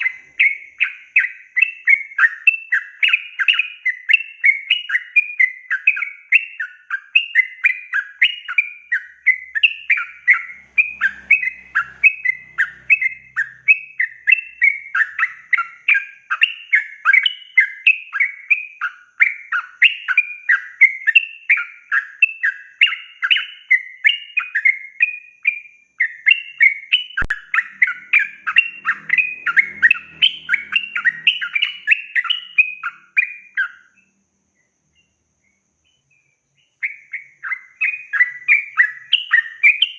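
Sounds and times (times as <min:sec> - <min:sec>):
bird singing bubbly chattering phrases: 0:27.1 - 0:33.7.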